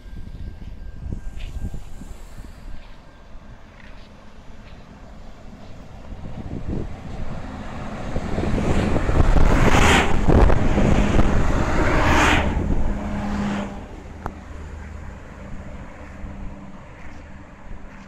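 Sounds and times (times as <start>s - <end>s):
train wheels rushing: 0.0s - 17.3s
diesel train engine hum: 0.0s - 18.0s.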